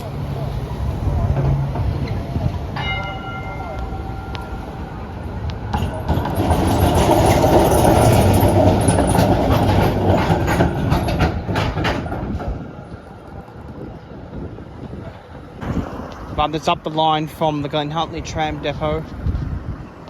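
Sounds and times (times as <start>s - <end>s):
tram wheels clacking over track: 0.0s - 14.0s
tram passing: 0.0s - 20.0s.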